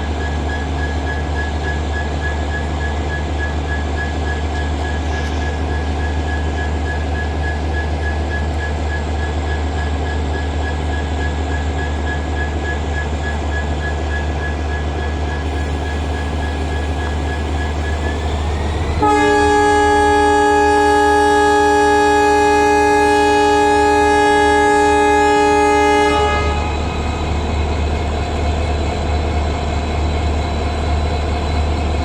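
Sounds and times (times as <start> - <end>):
locomotive rumble and whine: 0.0 - 32.0
locomotive horn: 15.5 - 27.6.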